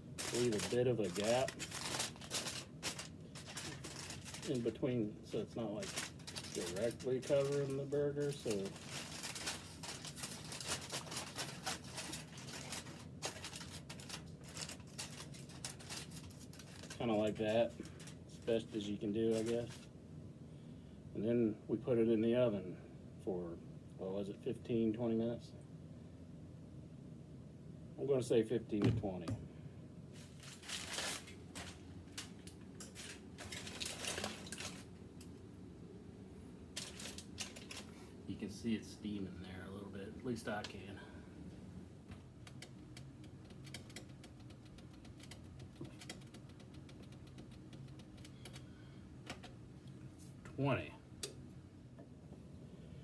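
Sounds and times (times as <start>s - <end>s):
aluminium foil crinkling: 0.0s - 19.9s, 30.2s - 35.4s, 36.7s - 38.2s, 42.2s - 49.6s.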